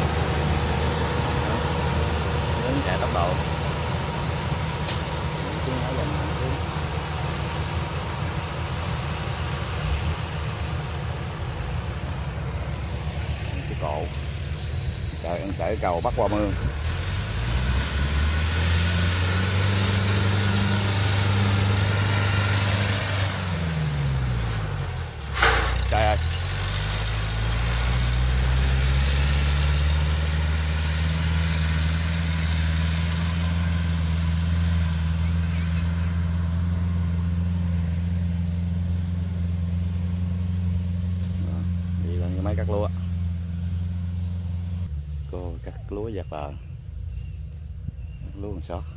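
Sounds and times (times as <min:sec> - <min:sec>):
combine harvester engine drone: 0:00.0 - 0:48.9.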